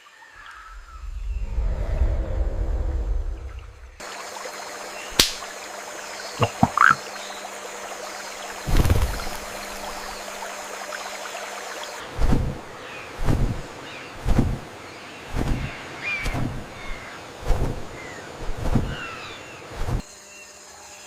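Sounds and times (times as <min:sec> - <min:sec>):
sharp click: 0:05.2 - 0:05.4
low thumps: 0:06.4 - 0:07.0.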